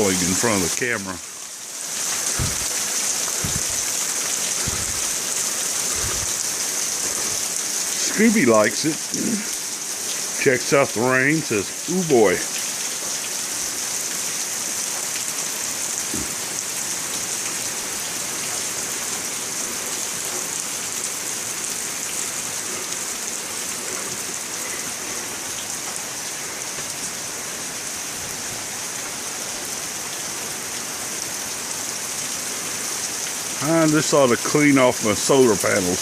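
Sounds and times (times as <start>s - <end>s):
heavy rain pouring: 0.0s - 36.0s.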